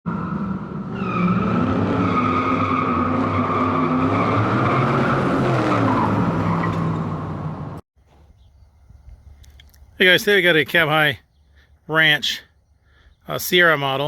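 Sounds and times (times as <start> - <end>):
car tires squealing: 0.1 - 7.5.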